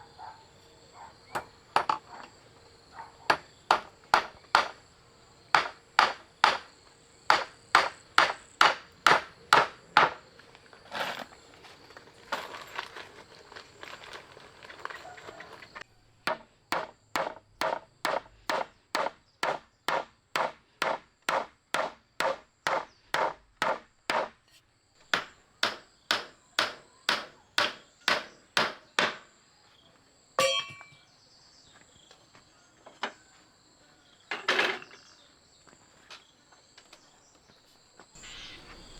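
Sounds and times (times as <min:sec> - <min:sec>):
blade chopping on wooden board: 0:05.6 - 0:06.7, 0:07.3 - 0:10.2, 0:16.3 - 0:24.4.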